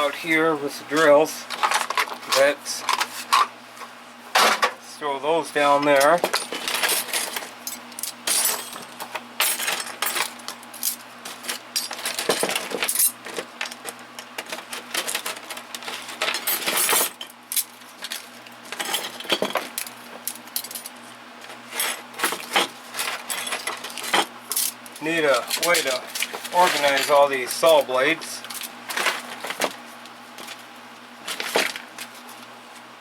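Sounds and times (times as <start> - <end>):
metal tools clinking in drawers: 5.8 - 19.9, 20.6 - 21.0, 21.7 - 24.8, 25.4 - 29.7.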